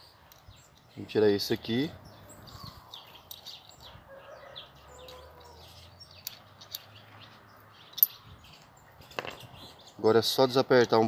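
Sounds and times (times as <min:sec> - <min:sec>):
small birds chirping: 0:00.0 - 0:11.0
metal tools clicking: 0:00.2 - 0:01.0, 0:03.0 - 0:03.8, 0:05.0 - 0:07.0, 0:07.8 - 0:09.5.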